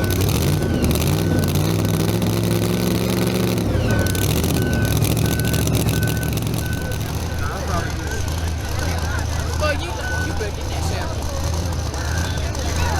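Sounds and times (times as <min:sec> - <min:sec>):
reversing beeper: 0:00.0 - 0:09.2
big engine running: 0:00.0 - 0:12.9.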